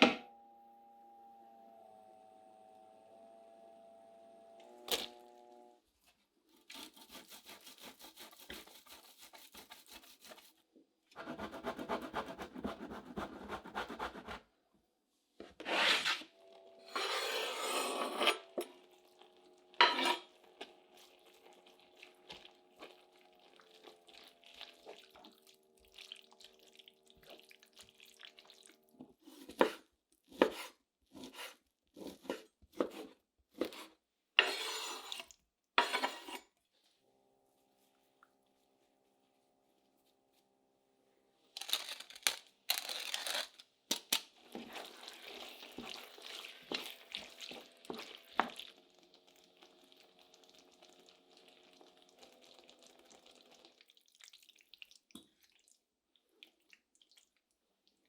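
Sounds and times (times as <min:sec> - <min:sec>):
utensil scraping: 0:06.6 - 0:10.6, 0:15.6 - 0:18.6, 0:34.4 - 0:36.4.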